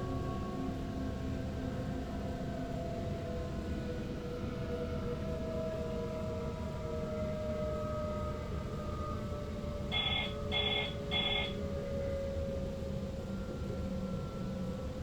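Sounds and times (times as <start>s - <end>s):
electric traction motors whining: 9.9s - 11.6s
short electronic beeps: 9.9s - 11.6s.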